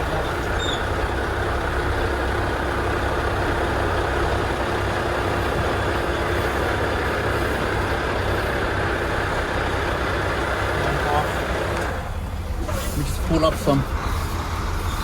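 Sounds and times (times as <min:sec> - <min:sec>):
truck diesel engine idling: 0:00.0 - 0:15.0.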